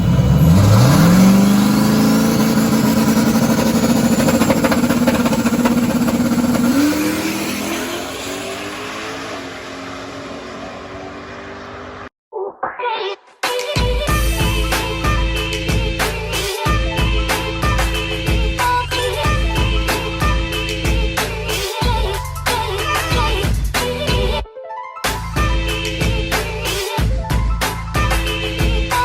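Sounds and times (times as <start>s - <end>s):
race car engine revving: 0.0s - 12.1s.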